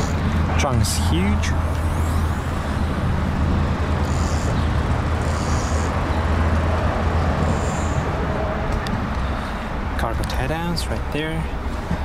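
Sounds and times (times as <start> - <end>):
car engine idling: 0.0 - 12.0
traffic noise: 0.0 - 12.0.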